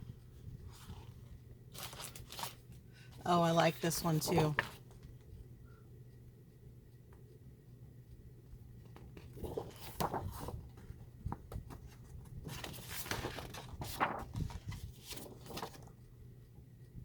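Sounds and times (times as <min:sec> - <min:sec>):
paper sheets rustling: 0:00.7 - 0:02.8, 0:03.9 - 0:05.0, 0:09.0 - 0:15.9.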